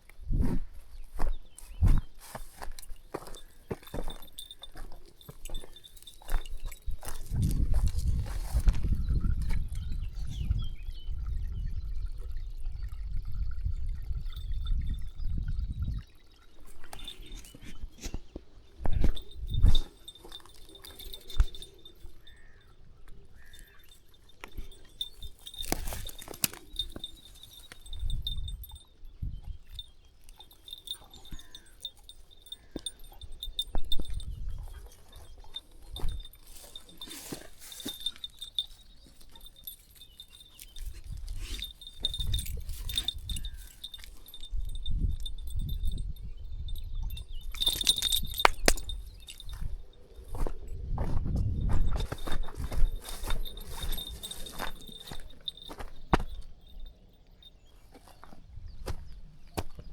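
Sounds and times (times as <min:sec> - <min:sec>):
footsteps on path: 0:00.0 - 0:09.7, 0:16.6 - 0:28.6, 0:30.4 - 0:44.4, 0:47.5 - 0:56.8, 0:57.8 - 0:59.9
wind buffeting microphone: 0:00.0 - 0:59.9
bird chirps: 0:15.2 - 0:44.7.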